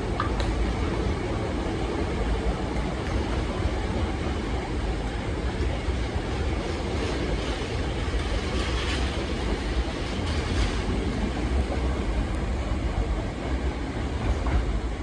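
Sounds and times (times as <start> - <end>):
electric train running past: 0.0 - 15.0.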